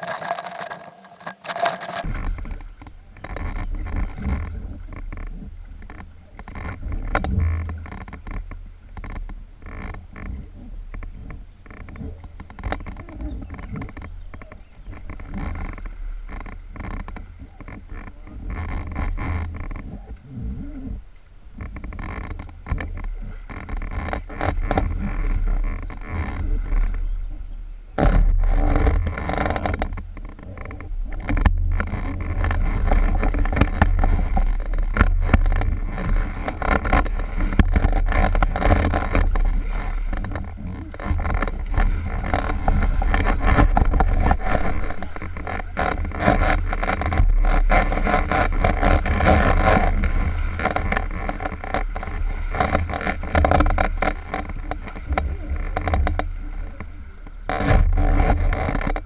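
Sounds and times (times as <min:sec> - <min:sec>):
wind rumble on microphone: 0:00.0 - 0:59.0
water rushing and splashing: 0:32.2 - 0:59.0.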